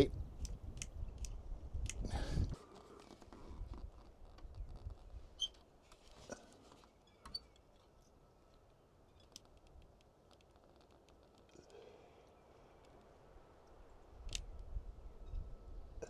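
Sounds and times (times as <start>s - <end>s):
faint handling clicks: 0.2s - 2.1s, 9.2s - 14.7s.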